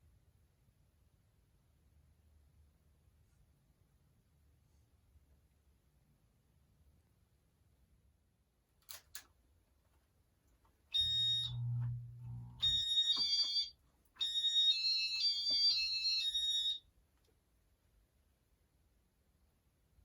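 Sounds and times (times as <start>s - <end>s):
high electronic beeps: 11.0s - 16.8s.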